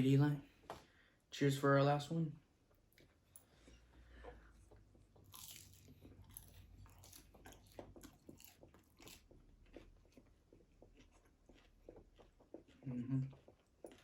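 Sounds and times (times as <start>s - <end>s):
crunchy food chewing: 4.7s - 14.0s.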